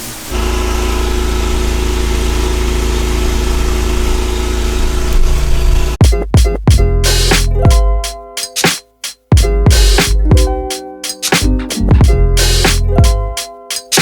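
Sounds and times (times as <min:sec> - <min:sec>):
pressure washer engine humming: 0:00.0 - 0:06.0
music with sharp beat: 0:06.0 - 0:14.0.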